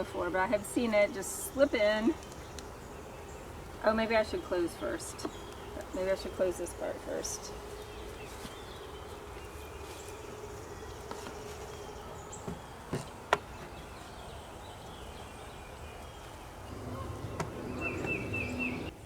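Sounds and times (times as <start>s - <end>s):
bees buzzing: 16.6s - 19.0s.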